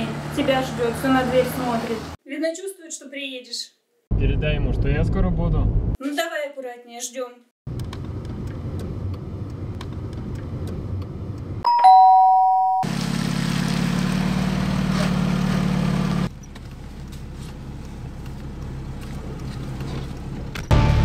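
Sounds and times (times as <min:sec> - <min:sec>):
car engine and road rumble: 0:00.0 - 0:02.2, 0:07.7 - 0:12.1, 0:12.8 - 0:21.0
two-note ding-dong chime: 0:11.7 - 0:12.8.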